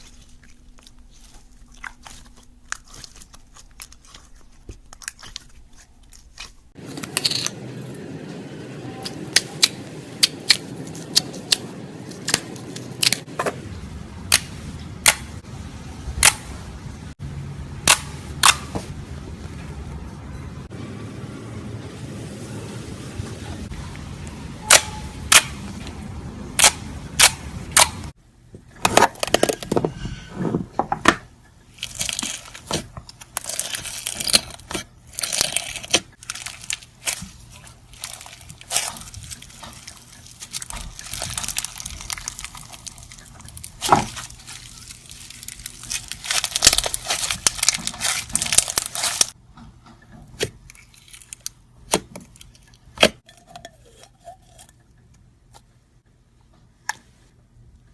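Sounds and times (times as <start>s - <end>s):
slime squeezed and popping: 33.4s - 49.4s.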